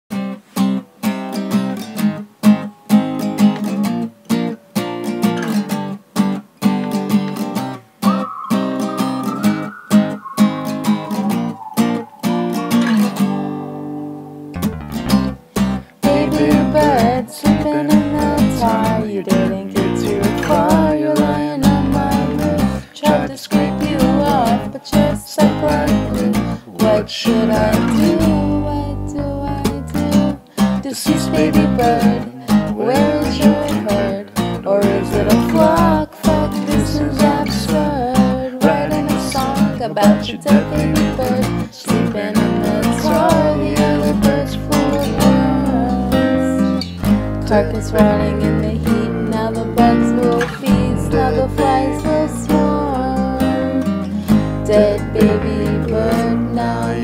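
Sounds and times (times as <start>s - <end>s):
acoustic guitar strumming chords: 0.1s - 57.0s
high held wavering note: 8.0s - 14.6s
pitch-bending melody line: 8.0s - 15.1s.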